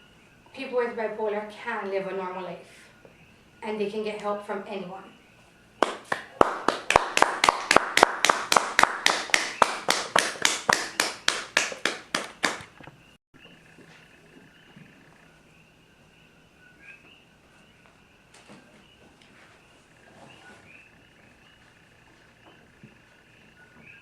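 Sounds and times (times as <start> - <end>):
audience clapping: 5.8 - 12.8.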